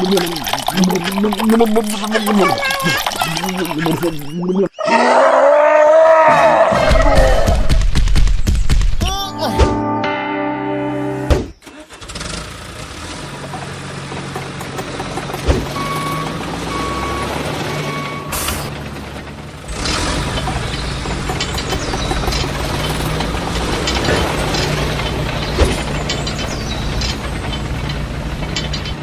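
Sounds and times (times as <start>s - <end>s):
rattling machine noise with clicks: 18.4s - 29.0s.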